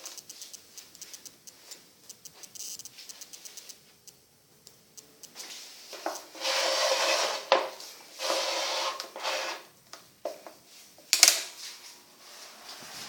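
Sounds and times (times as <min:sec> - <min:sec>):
sharp clicks: 0:00.0 - 0:05.4
rubbing and scraping: 0:06.0 - 0:09.7, 0:12.2 - 0:13.0.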